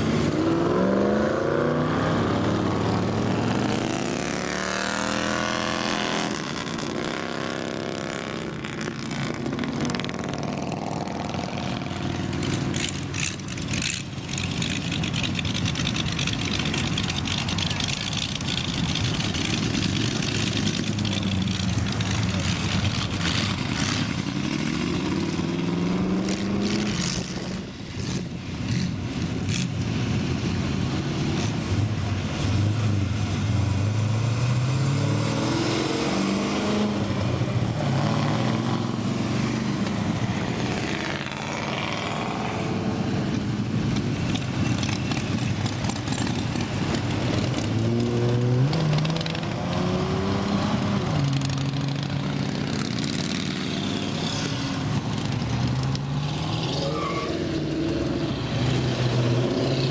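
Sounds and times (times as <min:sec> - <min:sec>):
cars accelerating past: 0:31.0 - 0:43.1.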